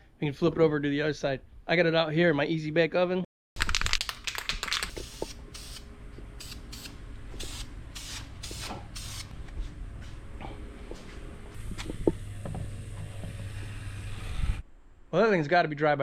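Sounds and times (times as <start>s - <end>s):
aerosol spray can hissing: 4.9s - 9.3s.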